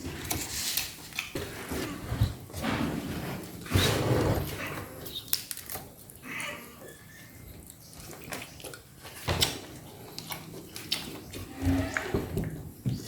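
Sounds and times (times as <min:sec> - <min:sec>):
chewing: 0:04.5 - 0:12.6.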